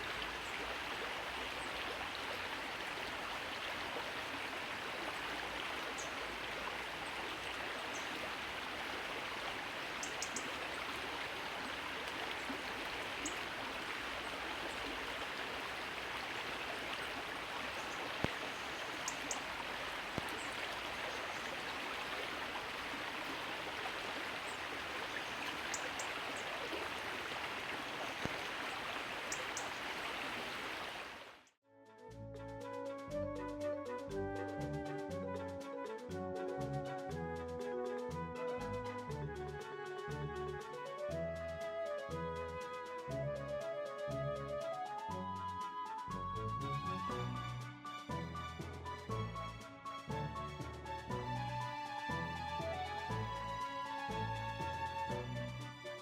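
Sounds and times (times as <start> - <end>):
stream water rushing: 0.0 - 31.5
short high bird calls: 9.8 - 10.8.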